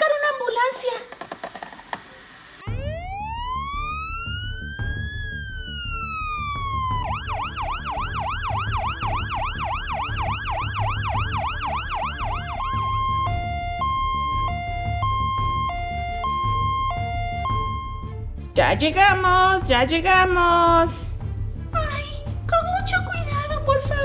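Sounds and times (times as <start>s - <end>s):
ambulance siren wailing and yelping: 2.6s - 18.2s.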